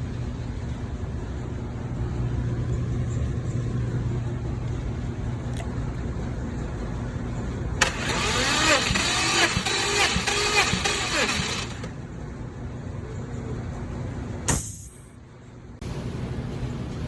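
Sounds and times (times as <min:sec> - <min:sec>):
engine cranking by starter: 0:07.8 - 0:12.0.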